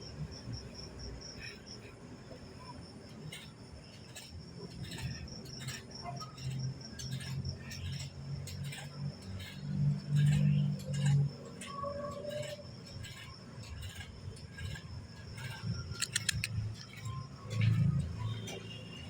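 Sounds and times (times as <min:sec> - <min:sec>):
crickets chirping: 0:00.0 - 0:19.0
short clicks: 0:15.9 - 0:17.0.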